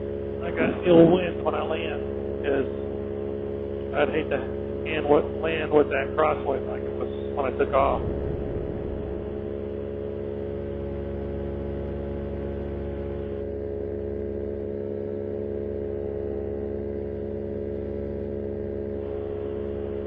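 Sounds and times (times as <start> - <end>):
paramotor engine droning: 0.0 - 20.0.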